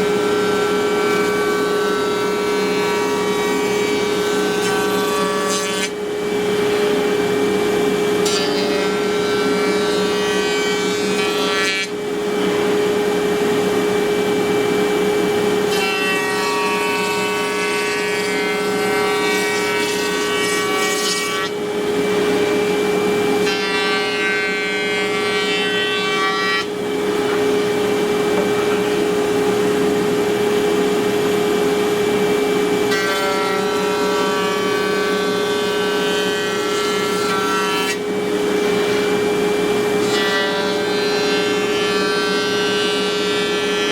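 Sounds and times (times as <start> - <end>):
bit cutting wood whine: 0.0 - 13.3.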